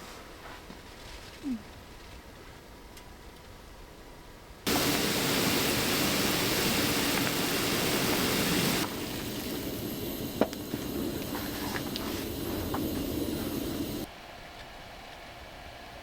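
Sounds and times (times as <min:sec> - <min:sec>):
steady rushing noise: 0:04.7 - 0:14.1.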